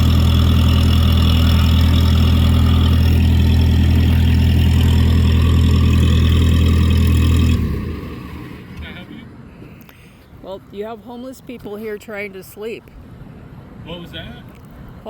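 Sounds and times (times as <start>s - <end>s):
truck engine running: 0.0s - 9.7s.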